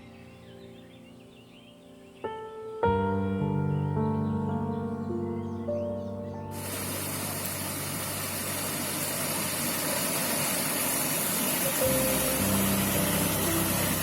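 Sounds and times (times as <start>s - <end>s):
soft music notes: 0.0s - 6.6s, 11.8s - 14.0s
flowing brook: 6.5s - 14.0s.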